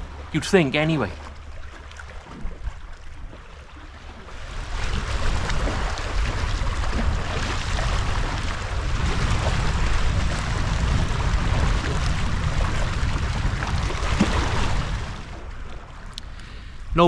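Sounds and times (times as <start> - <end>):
wind buffeting microphone: 4.0 - 16.1.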